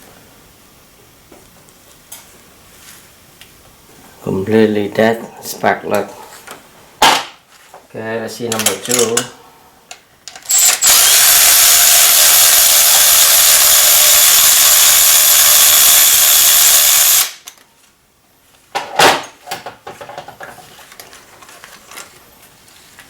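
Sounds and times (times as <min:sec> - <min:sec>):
power tool running: 0:10.5 - 0:17.4.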